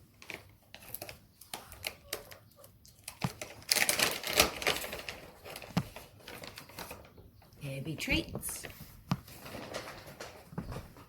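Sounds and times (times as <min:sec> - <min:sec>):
treats rattling in packet: 0:00.0 - 0:07.1.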